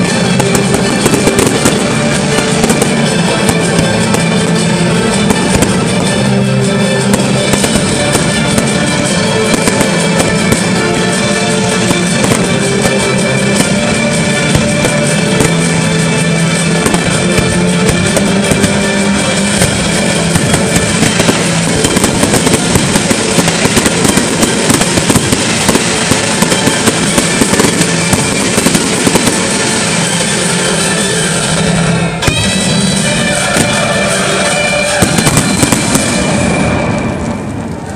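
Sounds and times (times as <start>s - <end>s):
fireworks bangs and crackles: 0.0s - 37.9s
music playing: 0.0s - 37.9s.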